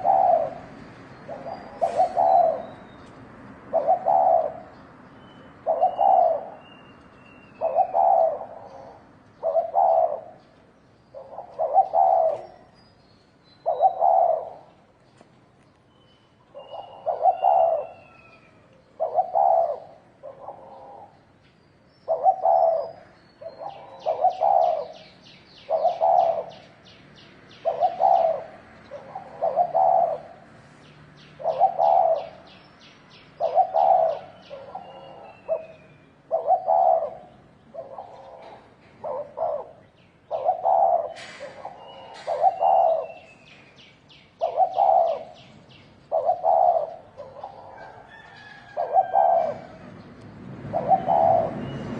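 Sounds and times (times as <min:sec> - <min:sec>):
dove cooing: 0:00.0 - 0:02.8, 0:03.6 - 0:04.8, 0:05.6 - 0:06.7, 0:07.5 - 0:10.5, 0:11.1 - 0:12.7, 0:13.6 - 0:14.8, 0:16.5 - 0:21.2, 0:22.1 - 0:26.8, 0:27.5 - 0:30.5, 0:31.4 - 0:32.6, 0:33.4 - 0:43.4, 0:44.4 - 0:50.0, 0:50.7 - 0:51.9
small birds chirping and trilling: 0:00.0 - 0:51.9.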